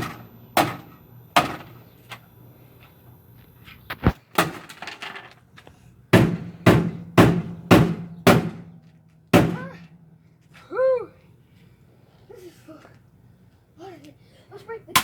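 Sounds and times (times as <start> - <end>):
heavy blows smashing washing machine: 6.1 - 8.8, 9.4 - 10.0.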